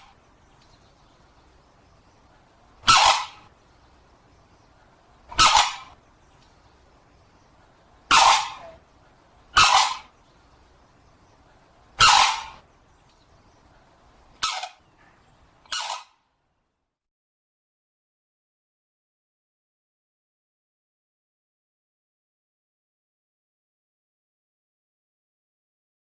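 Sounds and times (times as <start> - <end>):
crane trumpeting calls: 0.0 - 0.3, 2.8 - 3.6, 4.9 - 6.1, 8.0 - 10.3, 11.8 - 12.7, 14.3 - 16.2.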